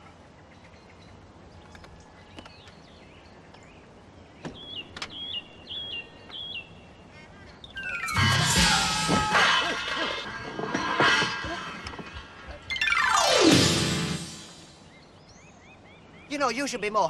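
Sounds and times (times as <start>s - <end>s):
bird chirping: 0.3s - 9.0s, 14.2s - 16.8s
falling glide of tones: 7.8s - 14.8s.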